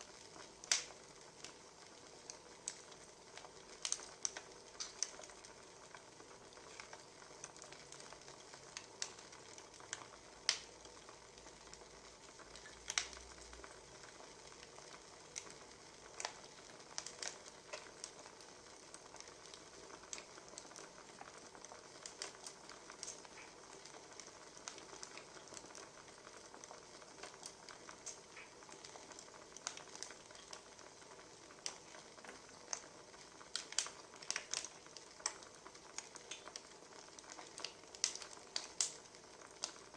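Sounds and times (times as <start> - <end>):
firewood crackling and popping: 0.0 - 39.9.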